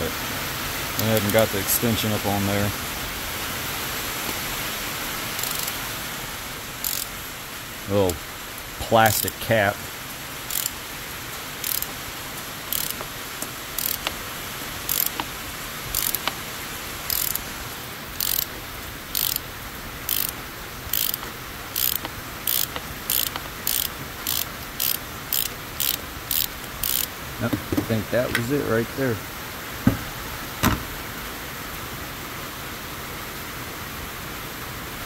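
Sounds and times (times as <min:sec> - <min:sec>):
ratchet wrench clicking: 0:05.4 - 0:05.8, 0:06.8 - 0:07.2, 0:09.1 - 0:09.4, 0:10.5 - 0:10.8, 0:11.6 - 0:12.1, 0:12.7 - 0:14.2, 0:14.8 - 0:16.4, 0:17.0 - 0:17.5, 0:18.2 - 0:27.1.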